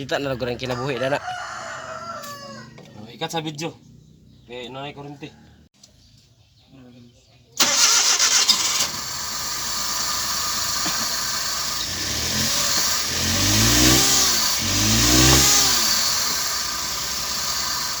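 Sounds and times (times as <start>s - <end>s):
small petrol engine revving: 7.6s - 18.0s.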